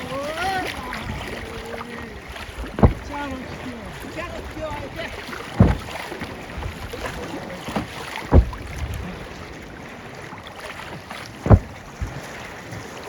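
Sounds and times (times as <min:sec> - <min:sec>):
wind on microphone: 0:00.0 - 0:07.5, 0:08.2 - 0:09.6, 0:11.4 - 0:12.4
water splashing: 0:00.0 - 0:13.0
paddle stroke thuds: 0:00.1 - 0:13.0.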